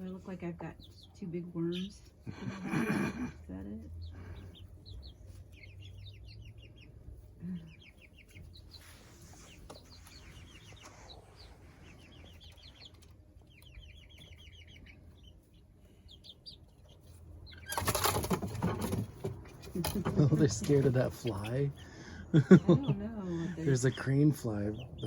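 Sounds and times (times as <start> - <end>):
young chickens peeping: 0.0 - 25.0
wing flapping: 17.6 - 21.3.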